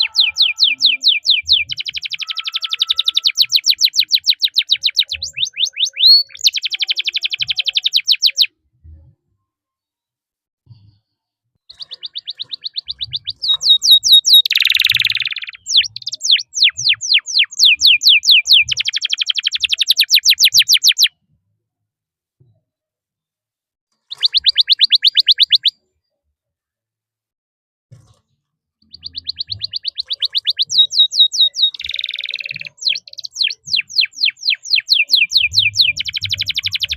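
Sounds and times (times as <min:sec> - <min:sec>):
canary singing trills: 0:00.0 - 0:08.5, 0:11.7 - 0:21.1, 0:24.1 - 0:25.8, 0:28.8 - 0:36.9.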